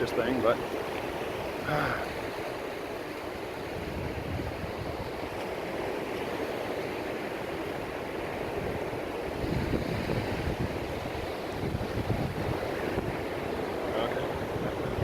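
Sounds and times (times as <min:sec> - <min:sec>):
wind buffeting microphone: 0:03.5 - 0:05.4, 0:08.4 - 0:15.0.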